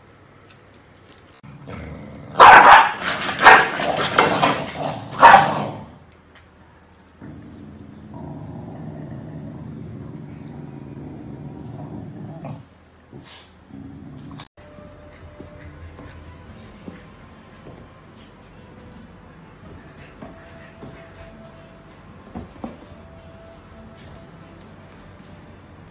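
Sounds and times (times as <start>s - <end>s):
dog growling: 1.4s - 6.0s, 7.2s - 14.5s
dog barking: 2.4s - 4.2s, 5.1s - 5.8s.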